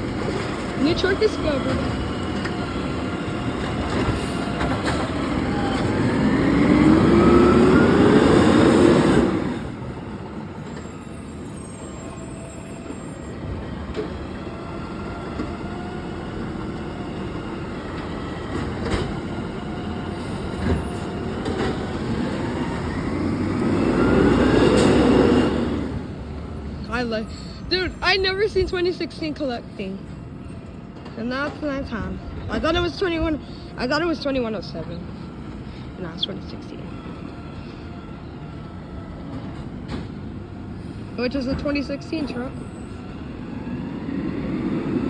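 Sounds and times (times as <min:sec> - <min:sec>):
garbage truck engine revving: 0:00.1 - 0:11.0, 0:13.3 - 0:26.3.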